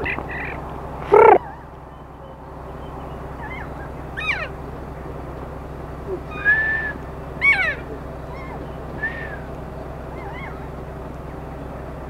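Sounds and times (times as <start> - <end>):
bird whistling descending note: 1.1 - 4.6, 6.1 - 10.8
bird held whistle: 6.3 - 7.8, 8.4 - 9.5.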